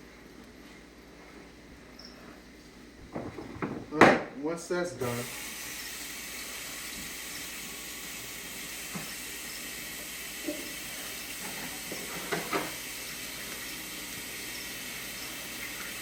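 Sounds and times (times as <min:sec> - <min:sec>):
light knocks and clatters: 0:03.0 - 0:04.3
water hissing: 0:05.0 - 0:11.4.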